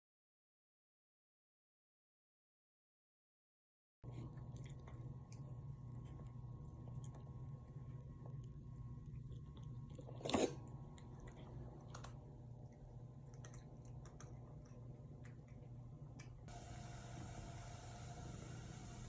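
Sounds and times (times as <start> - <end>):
cats crunching food: 4.1 - 17.3.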